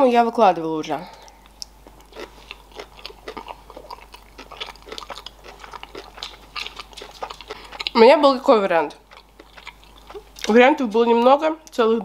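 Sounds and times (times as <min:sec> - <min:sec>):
person chewing food: 0:01.1 - 0:08.1, 0:08.8 - 0:10.6.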